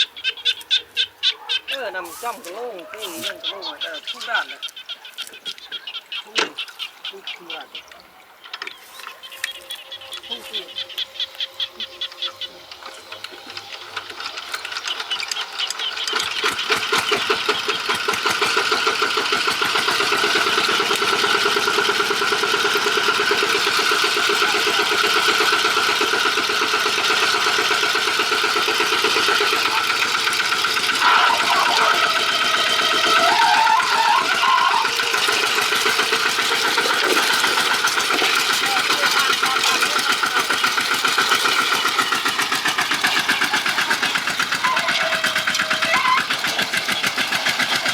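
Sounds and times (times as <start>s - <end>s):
tractor engine knocking: 10.1s - 47.9s.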